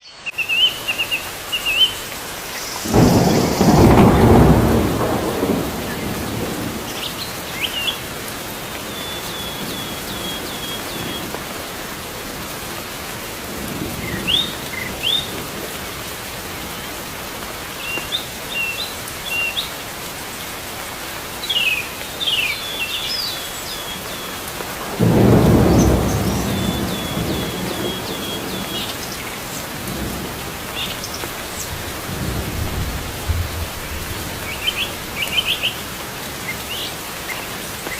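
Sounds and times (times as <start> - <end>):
birds chirping: 0.0 - 11.4, 21.4 - 37.9
steady rain: 0.0 - 37.9
thunder rolling: 2.8 - 7.7, 24.8 - 35.4.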